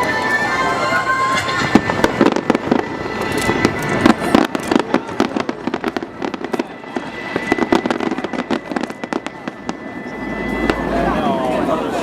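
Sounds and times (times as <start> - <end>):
fireworks popping and crackling: 1.3 - 9.8.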